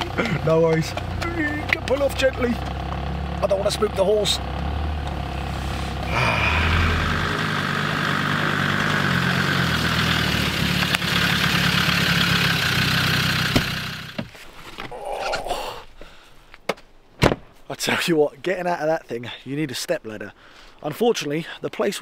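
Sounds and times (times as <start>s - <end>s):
loud vehicle engine and exhaust: 0.0s - 14.2s.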